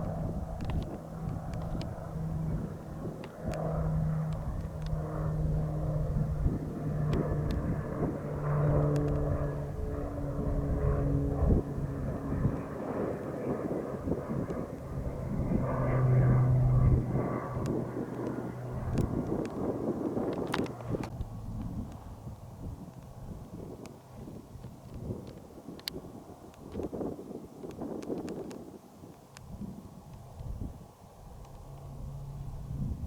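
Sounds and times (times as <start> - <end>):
airplane engine drone flyover: 0.0 - 33.0.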